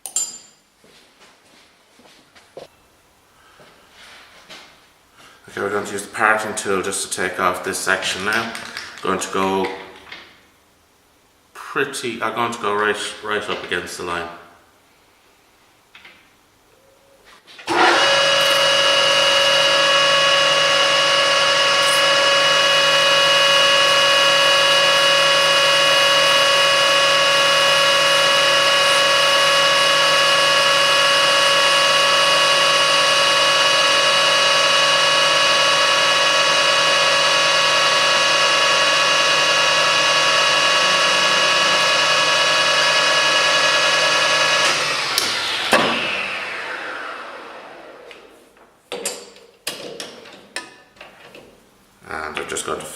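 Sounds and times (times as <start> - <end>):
parting tool cutting metal bar: 17.7 - 46.1
metal lathe whining: 17.7 - 48.3.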